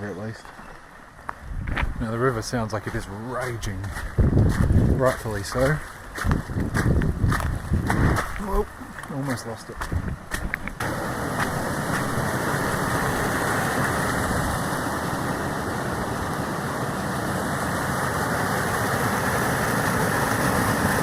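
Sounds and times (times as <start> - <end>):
river water rushing: 10.3 - 21.0.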